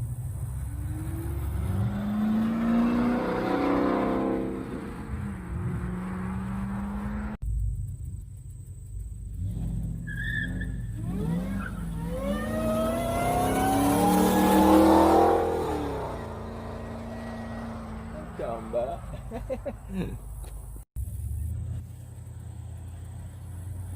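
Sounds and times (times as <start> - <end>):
car engine revving hard: 0.7 - 7.4, 9.3 - 19.3
engine idling: 4.5 - 13.6, 15.6 - 23.9.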